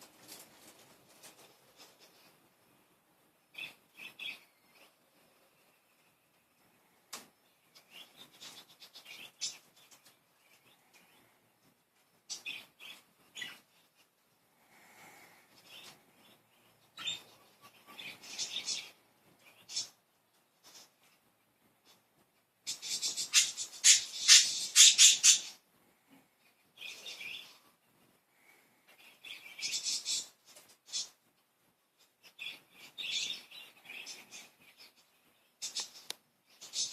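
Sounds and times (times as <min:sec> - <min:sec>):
budgies chirping and chattering: 0:15.6 - 0:20.0, 0:22.7 - 0:25.6, 0:29.0 - 0:31.2, 0:32.2 - 0:36.9
budgerigars chirping: 0:22.7 - 0:25.6.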